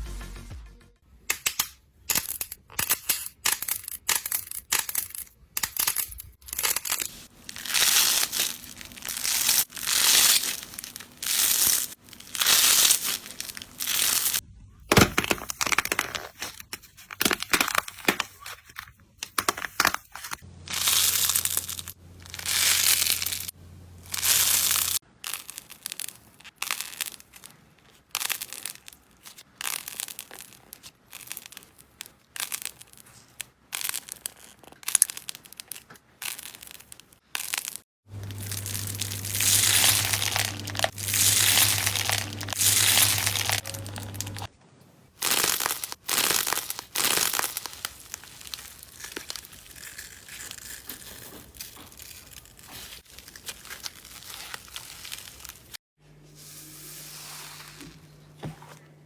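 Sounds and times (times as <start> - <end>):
slime crackling and tearing: 6.6 - 14.4, 20.7 - 23.5, 24.1 - 44.5, 45.2 - 55.8.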